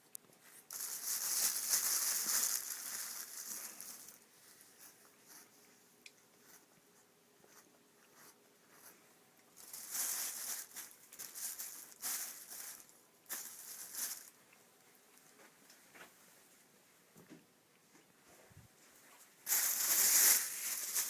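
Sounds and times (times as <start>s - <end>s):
rustling and scratching: 0.3s - 5.8s, 6.4s - 14.4s, 18.2s - 21.0s.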